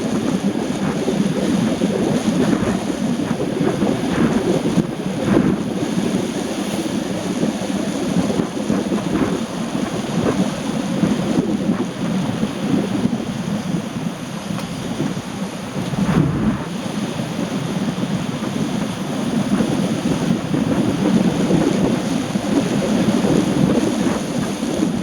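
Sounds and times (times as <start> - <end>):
wind buffeting microphone: 0.0 - 25.0
rain rumbling: 14.6 - 25.0.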